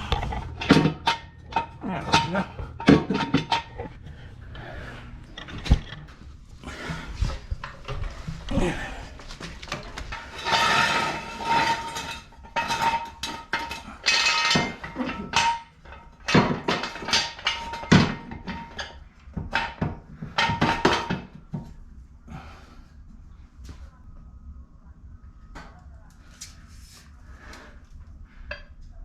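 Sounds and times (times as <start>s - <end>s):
metal clanks and knocks: 0.0s - 6.3s, 7.2s - 21.8s.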